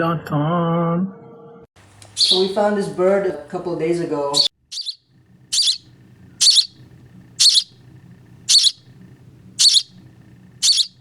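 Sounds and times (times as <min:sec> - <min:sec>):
baby bird cheeping: 0:02.0 - 0:02.7, 0:04.3 - 0:07.8, 0:08.4 - 0:11.0.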